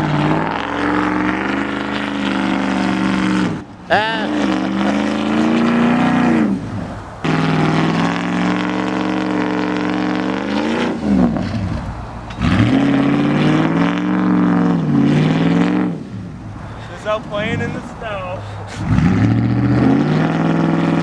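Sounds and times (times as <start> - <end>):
truck engine revving hard: 0.0 - 21.0.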